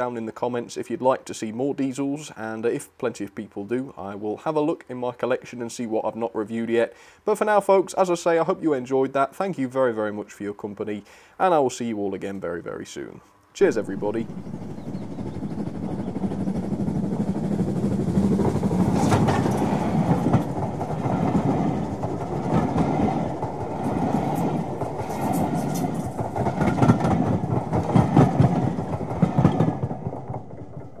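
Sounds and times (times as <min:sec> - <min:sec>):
train rumble: 0:13.6 - 0:31.0
train wheels clattering over rails: 0:13.8 - 0:31.0.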